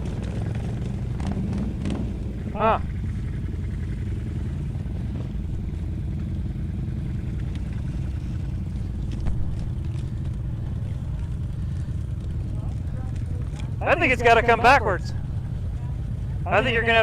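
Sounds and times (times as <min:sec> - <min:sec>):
engine idling: 0:00.0 - 0:17.0
light knocks and clatter: 0:04.7 - 0:13.8.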